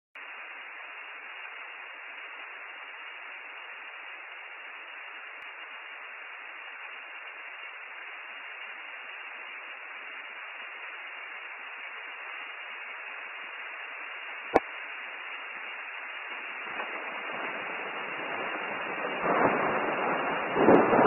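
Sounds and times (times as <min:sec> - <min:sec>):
steady rain falling: 0:00.2 - 0:21.0.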